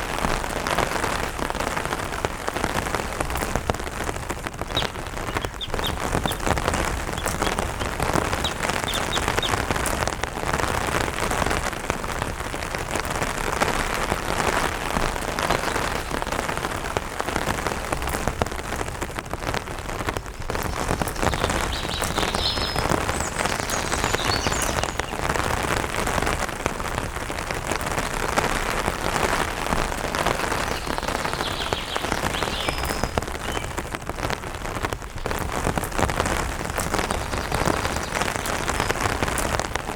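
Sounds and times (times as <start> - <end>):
rain on an umbrella: 0.0 - 39.9
high bird chirps: 4.7 - 9.8, 21.1 - 25.2, 30.5 - 33.7.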